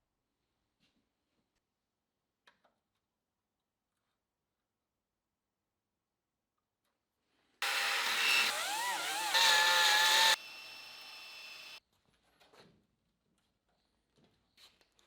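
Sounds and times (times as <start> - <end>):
power tool motor whine: 7.6 - 11.8.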